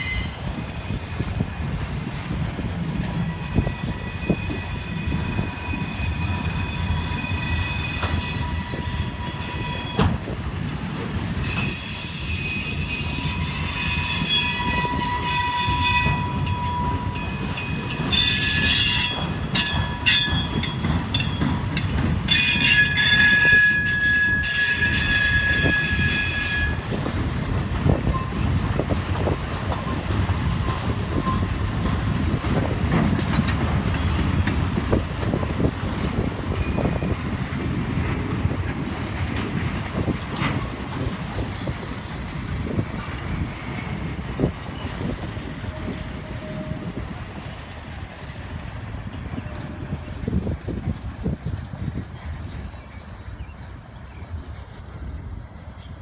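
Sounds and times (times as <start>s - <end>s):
flatcars rumbling on steel wheels: 0.0s - 56.0s
high thin wheel squeal: 3.2s - 10.1s, 11.4s - 17.3s, 18.0s - 20.8s, 22.3s - 26.8s, 48.9s - 53.0s.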